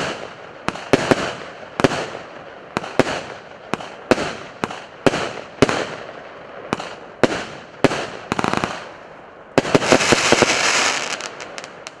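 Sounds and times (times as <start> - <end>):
firework bangs: 0.0 - 6.1, 9.6 - 12.0
firework crackling pops: 0.0 - 9.0, 9.6 - 12.0.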